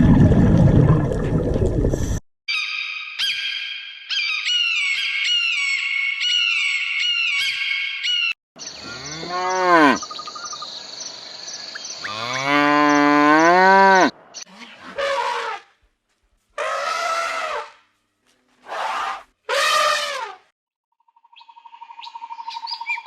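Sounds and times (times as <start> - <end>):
cow mooing: 8.8 - 10.1, 12.0 - 14.7.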